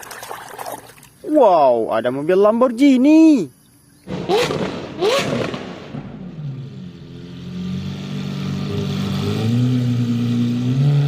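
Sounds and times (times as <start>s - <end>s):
car engine revving: 4.1s - 11.0s.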